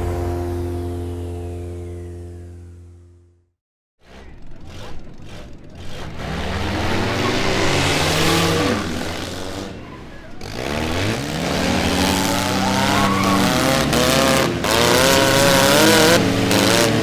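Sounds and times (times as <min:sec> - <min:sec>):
car engines revving hard: 0:04.0 - 0:17.0.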